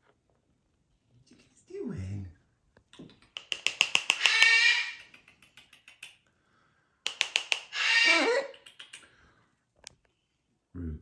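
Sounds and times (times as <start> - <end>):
macaw quick sharp clicks: 3.0 - 6.2, 7.1 - 9.2
macaw raspy call: 3.4 - 5.2, 7.1 - 8.5.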